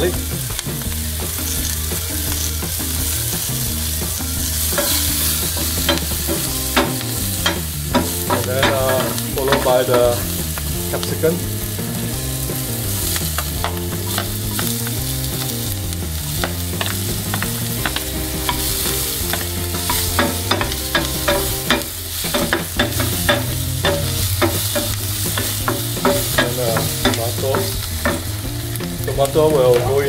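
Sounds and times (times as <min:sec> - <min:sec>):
vegetables sizzling in hot oil: 0:00.0 - 0:30.0
wooden spatula scraping a pan: 0:16.3 - 0:28.4.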